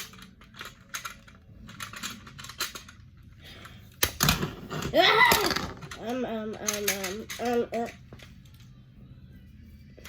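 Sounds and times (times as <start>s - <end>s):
plastic bricks clicking and clattering: 0.0s - 3.1s, 4.0s - 8.0s.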